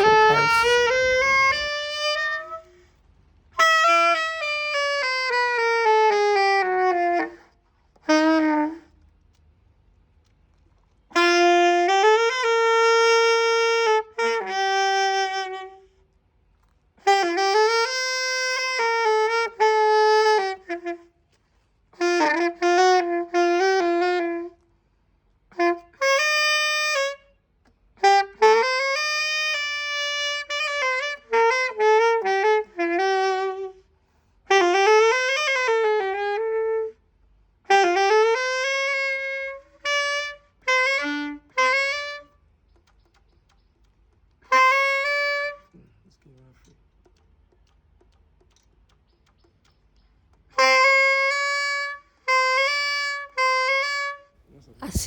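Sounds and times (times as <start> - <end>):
saxophone melodic phrases: 0.0 - 2.7, 50.6 - 54.2.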